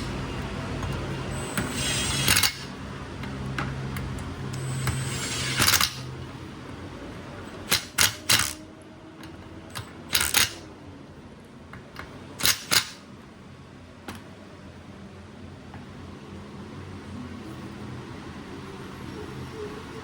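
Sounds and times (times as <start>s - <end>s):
hand tools clicking and clacking: 7.6s - 8.6s, 9.2s - 10.7s, 11.9s - 13.0s.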